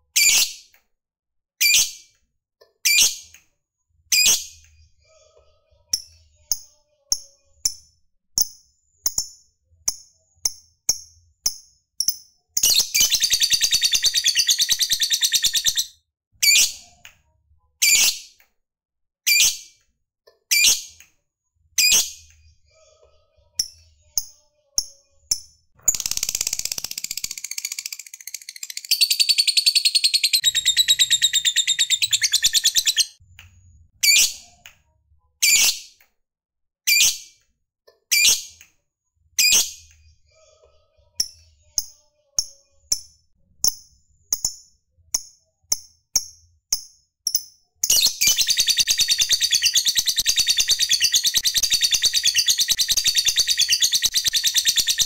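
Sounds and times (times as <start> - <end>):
lovebird chirping: 12.0 - 15.9, 25.8 - 33.2, 47.3 - 55.0.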